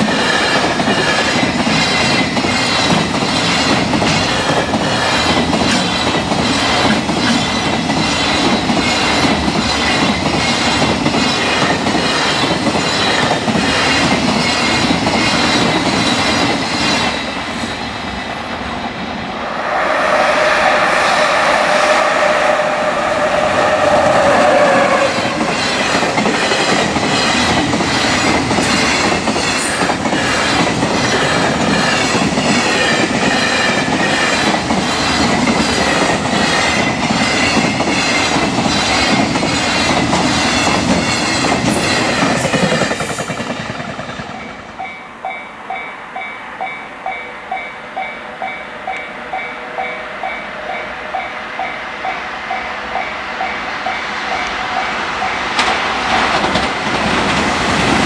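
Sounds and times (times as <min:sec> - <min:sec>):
loud held pitched tone: 0:19.2 - 0:26.0.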